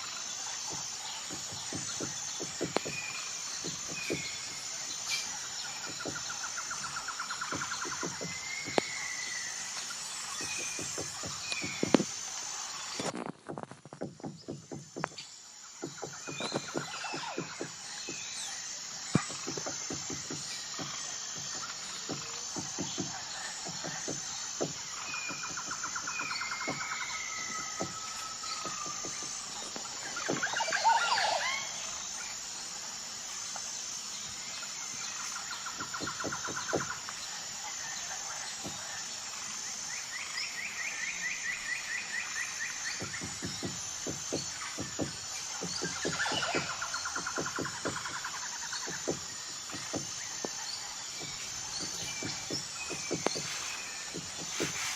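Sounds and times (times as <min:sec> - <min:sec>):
insect trill: 0:00.0 - 0:54.9
woodpecker tapping on wood: 0:00.6 - 0:09.4, 0:10.3 - 0:12.2, 0:13.0 - 0:18.3, 0:19.1 - 0:30.8, 0:35.2 - 0:37.2, 0:42.9 - 0:54.9
bird chirps: 0:42.0 - 0:54.9
woodpecker pecking tree trunk: 0:51.2 - 0:54.9.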